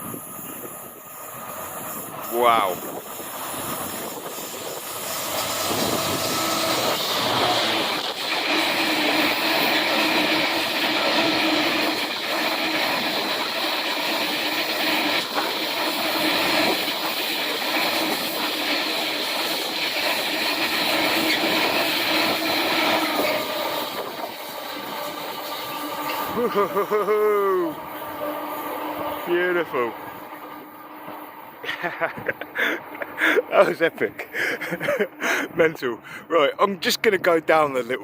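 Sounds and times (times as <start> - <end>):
freight train rumbling past: 0.0 - 38.0.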